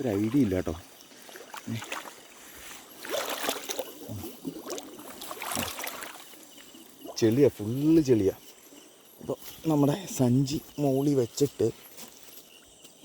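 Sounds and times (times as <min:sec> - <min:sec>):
person wading through water: 0:00.0 - 0:07.2.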